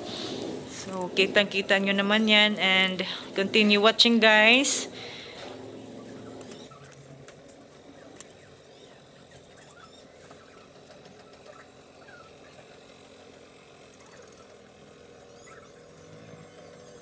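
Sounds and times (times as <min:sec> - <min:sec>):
faint bird chirps: 0:07.8 - 0:13.0, 0:13.9 - 0:17.0.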